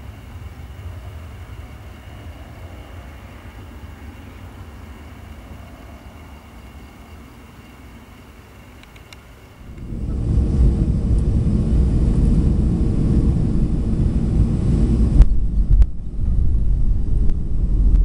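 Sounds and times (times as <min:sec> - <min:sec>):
jet engines rumbling: 0:00.0 - 0:18.0
sharp clicks: 0:08.8 - 0:09.9.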